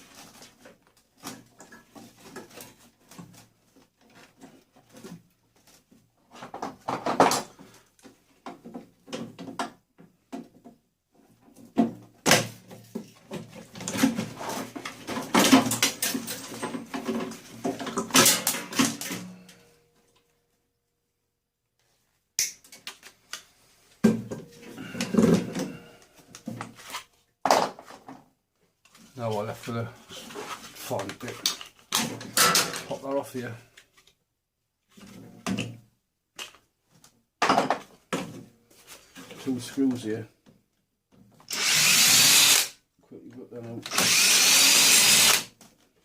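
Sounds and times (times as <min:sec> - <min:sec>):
plastic and metal parts clattering: 0:00.0 - 0:19.7, 0:24.0 - 0:28.3, 0:30.1 - 0:33.2.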